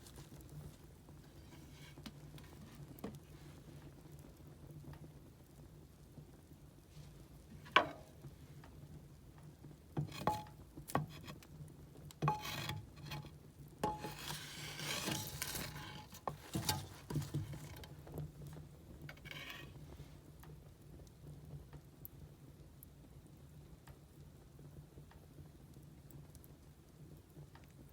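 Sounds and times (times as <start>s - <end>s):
firewood crackling and popping: 0.0s - 19.8s.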